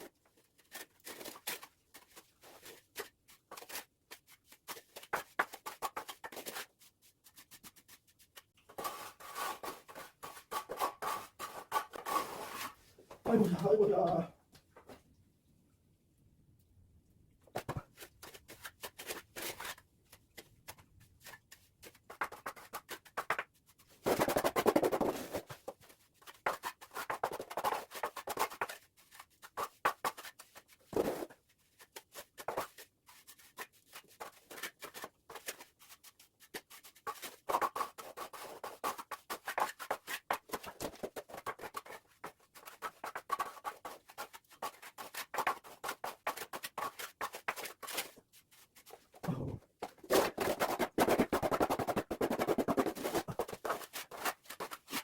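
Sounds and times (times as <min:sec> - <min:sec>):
trowel scraping mortar: 0:08.7 - 0:12.8.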